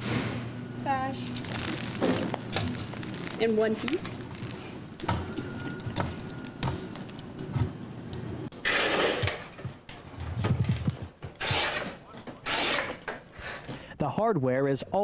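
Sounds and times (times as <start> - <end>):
rasping scrapes: 11.4 - 13.0.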